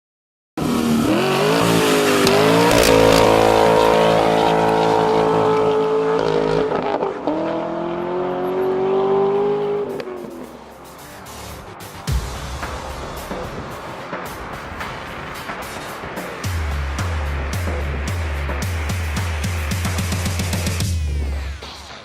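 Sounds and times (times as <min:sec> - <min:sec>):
car engine revving hard: 0:00.6 - 0:10.4.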